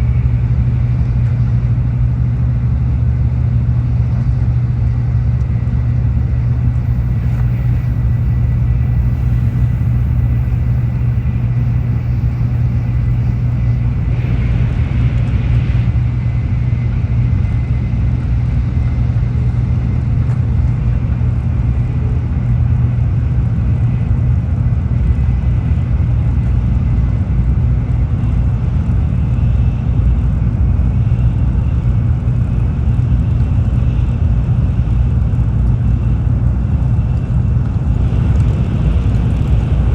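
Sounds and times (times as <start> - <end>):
train rumble inside carriage: 0.0 - 39.9
higher-pitched swell: 5.2 - 14.9.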